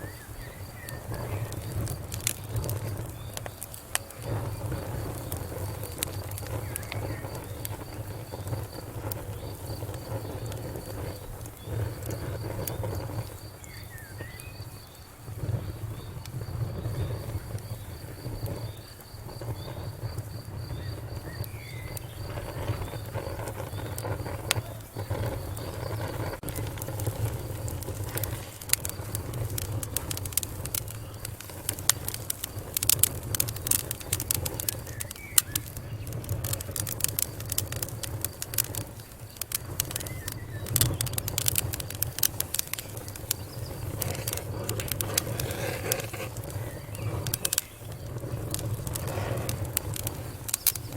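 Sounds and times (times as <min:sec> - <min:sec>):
wood fire crackling and popping: 0:00.0 - 0:50.9.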